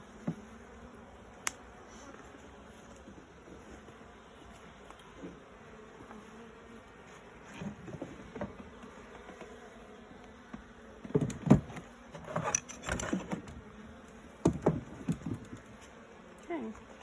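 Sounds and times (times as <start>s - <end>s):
honey bees buzzing: 0.0s - 17.0s
knocks and scraping: 7.4s - 9.5s, 10.5s - 13.7s, 14.4s - 16.0s.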